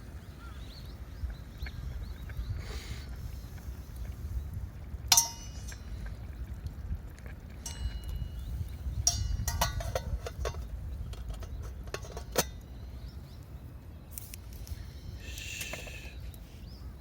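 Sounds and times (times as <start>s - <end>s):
steady low rumble: 0.0s - 17.0s
dishes and utensils clinking: 9.1s - 12.6s.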